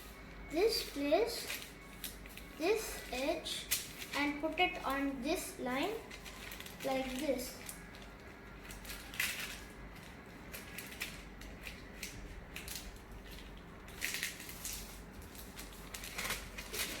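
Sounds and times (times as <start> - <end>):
paper being folded and creased: 5.8 - 17.0.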